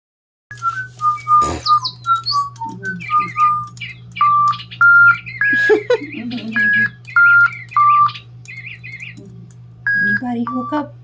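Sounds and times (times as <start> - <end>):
electronic toy birds whistling: 0.5 - 9.2, 9.8 - 10.9
warbling chirps: 0.5 - 9.2.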